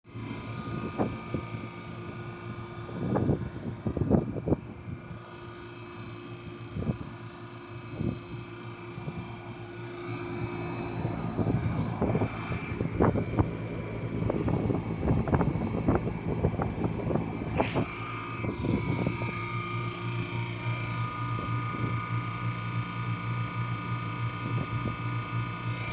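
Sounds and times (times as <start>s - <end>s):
compressor humming: 0.0s - 25.9s
compressor knocking and clattering: 10.2s - 25.9s.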